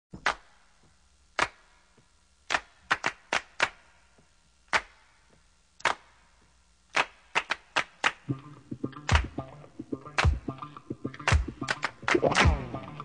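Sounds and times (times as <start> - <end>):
handclaps: 0.2 - 8.4, 9.0 - 9.5, 10.2 - 13.0
funk band playing: 8.3 - 13.0.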